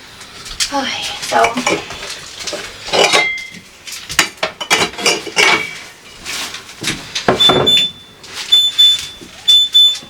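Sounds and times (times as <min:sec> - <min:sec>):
dishes and jars clinking: 0:02.9 - 0:03.6, 0:04.4 - 0:05.8.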